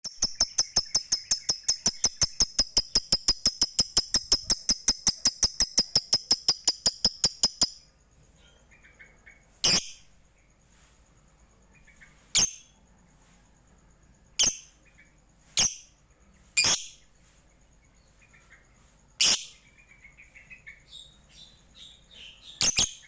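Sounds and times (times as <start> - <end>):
faint bird chirps: 0.0 - 23.0
bird chipping calls: 0.1 - 7.8.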